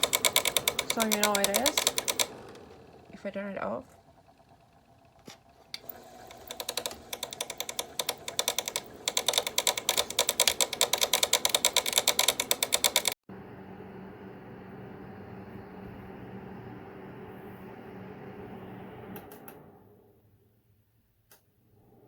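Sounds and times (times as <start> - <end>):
space heater mechanical clicking: 0.0 - 13.2, 19.1 - 19.7.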